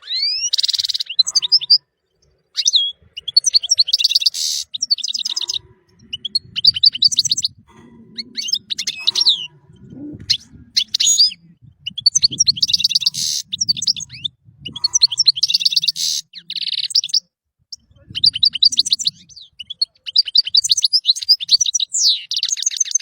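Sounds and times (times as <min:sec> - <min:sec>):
goldfinch singing: 0:00.0 - 0:22.8
faint low rumble: 0:05.3 - 0:15.2.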